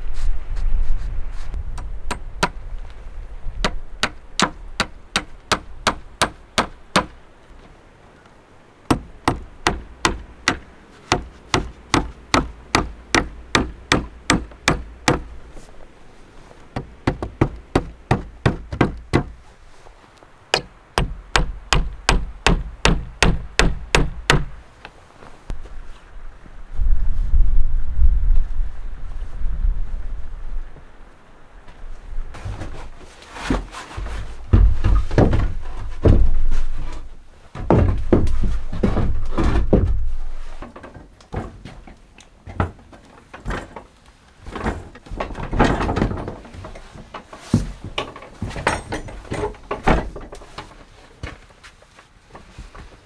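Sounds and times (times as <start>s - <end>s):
wind rumbling: 0.0s - 32.4s
hammer blows: 8.9s - 15.4s, 16.8s - 19.5s, 20.5s - 24.6s.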